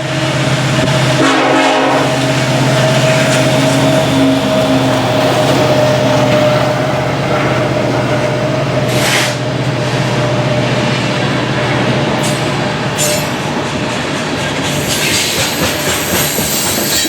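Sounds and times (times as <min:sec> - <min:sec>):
low diesel drone: 0:00.0 - 0:13.6
train cars on rails: 0:00.0 - 0:17.0.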